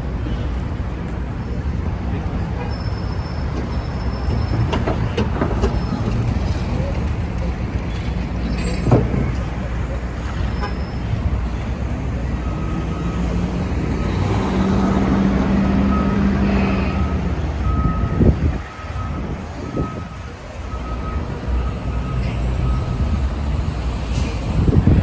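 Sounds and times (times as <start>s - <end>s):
city traffic rumble: 0.0s - 25.0s
large engine hum: 0.0s - 25.0s
truck reversing alarm beeping: 8.4s - 25.0s.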